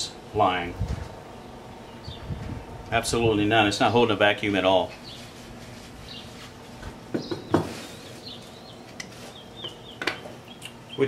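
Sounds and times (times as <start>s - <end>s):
faint birds chirping: 0.0s - 11.0s.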